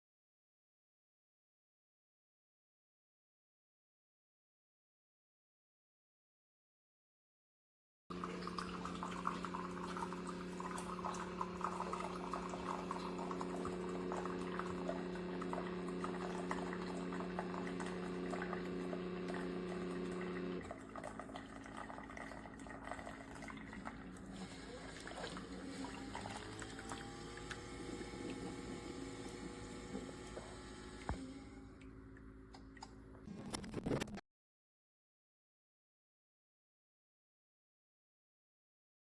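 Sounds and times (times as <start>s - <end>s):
coffee trickling and dripping: 8.1s - 28.6s
coffee maker pump humming: 8.1s - 34.1s.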